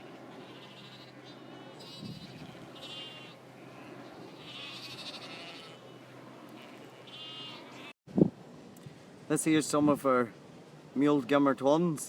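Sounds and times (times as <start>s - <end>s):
sheep bleating: 0.1s - 5.8s, 6.5s - 7.9s.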